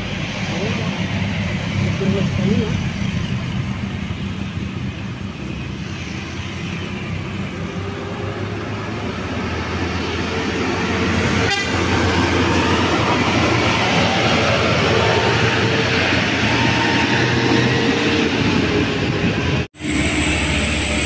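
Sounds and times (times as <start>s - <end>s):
heavy vehicle engine passing: 0.0s - 21.0s
road noise: 0.0s - 21.0s
horn tone: 11.3s - 11.9s.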